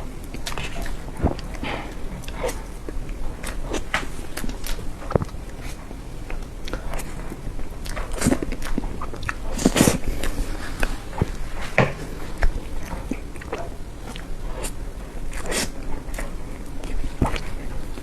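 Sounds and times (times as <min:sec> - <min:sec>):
wet chewing and mouth smacks: 0:00.0 - 0:18.0.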